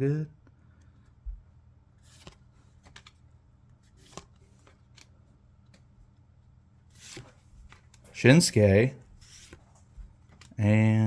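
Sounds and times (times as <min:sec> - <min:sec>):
trading cards flipping: 0:02.0 - 0:06.0, 0:06.9 - 0:08.2, 0:09.2 - 0:10.6.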